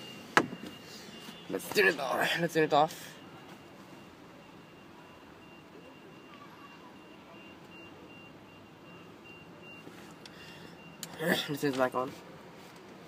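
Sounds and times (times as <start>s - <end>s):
high-pitched pulsing beeps: 3.1s - 11.1s.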